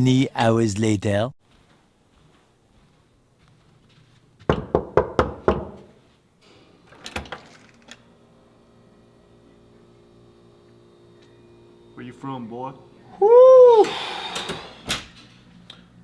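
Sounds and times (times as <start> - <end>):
loud knocks on a door: 4.5 - 5.9.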